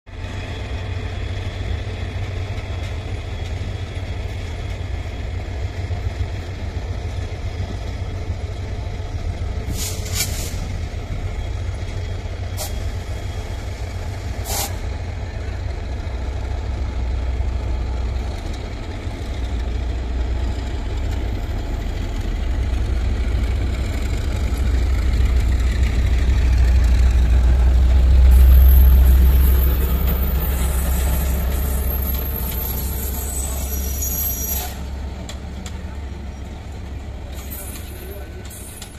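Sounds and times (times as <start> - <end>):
diesel trains rumbling: 0.1 - 38.9
sharp hissing: 14.3 - 14.8.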